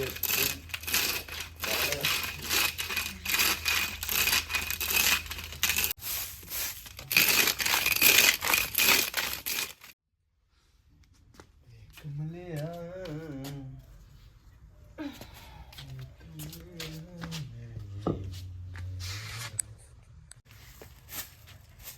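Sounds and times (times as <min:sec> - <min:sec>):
rapid rustling and tearing: 0:00.0 - 0:06.0, 0:06.6 - 0:10.0.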